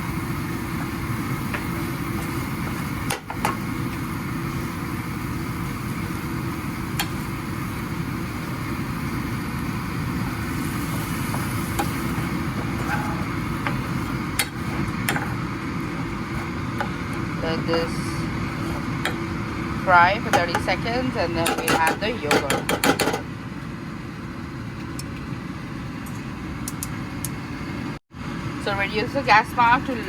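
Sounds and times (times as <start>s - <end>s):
spices frying in a pot: 0.0s - 23.1s
low kitchen rumble: 0.0s - 30.0s.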